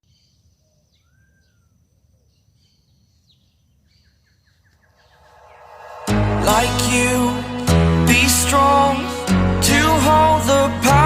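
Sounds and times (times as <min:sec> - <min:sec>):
faint birdsong: 0:00.0 - 0:06.2.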